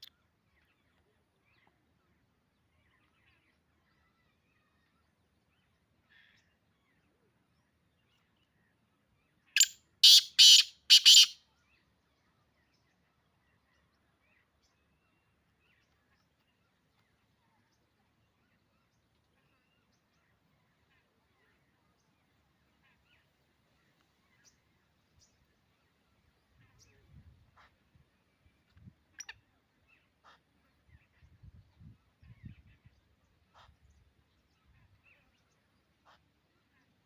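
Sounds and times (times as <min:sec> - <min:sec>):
francolin calling: 0:09.6 - 0:11.4.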